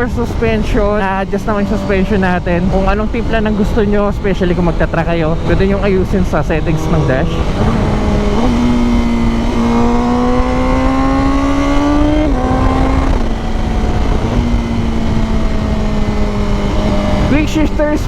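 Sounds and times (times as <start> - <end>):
motorcycle engine pulling under load: 6.6 - 17.3.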